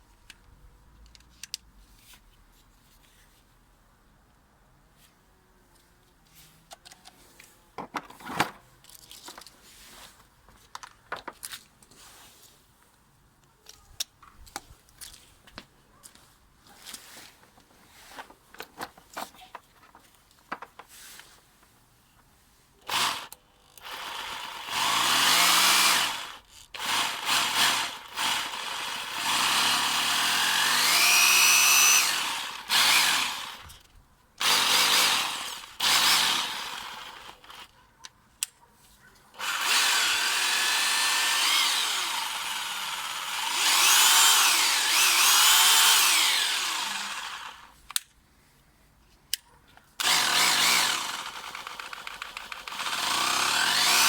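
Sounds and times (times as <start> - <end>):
tool handling clicks: 0.2 - 1.7, 45.9 - 48.2, 49.3 - 53.5
rotary hammer motor running: 22.9 - 33.6, 34.4 - 37.6, 39.4 - 47.7, 50.0 - 54.0.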